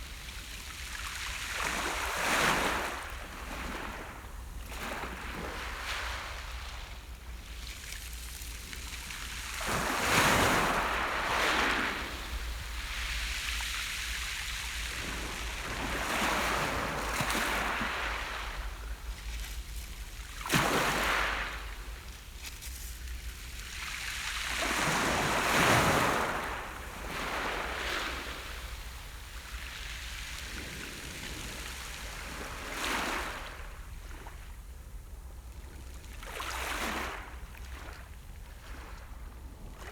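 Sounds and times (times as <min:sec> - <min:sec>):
small waves breaking on beach: 0:00.0 - 0:34.4.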